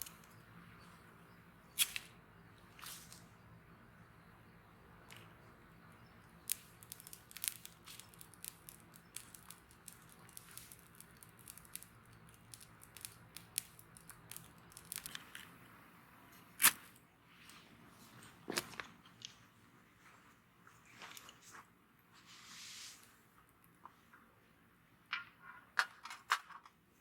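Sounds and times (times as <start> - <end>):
wood fire crackling and popping: 6.0 - 15.6.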